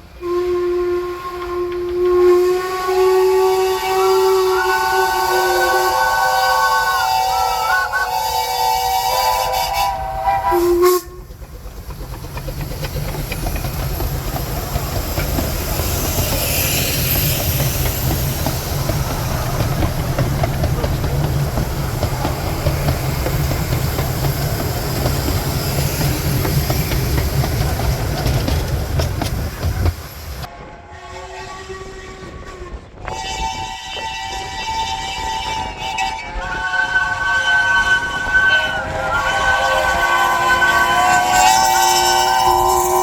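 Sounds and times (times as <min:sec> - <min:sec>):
train rumble and rail clatter: 0:00.0 - 0:43.0
steam locomotive whistle: 0:00.2 - 0:11.4, 0:30.4 - 0:43.0
steam hiss: 0:02.5 - 0:30.5, 0:33.1 - 0:43.0.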